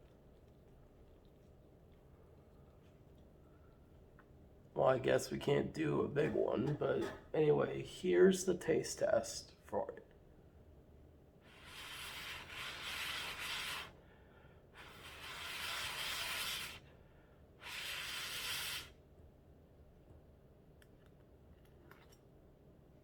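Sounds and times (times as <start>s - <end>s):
blowing air over hot noodles: 11.4s - 14.1s, 14.7s - 16.9s, 17.6s - 19.0s.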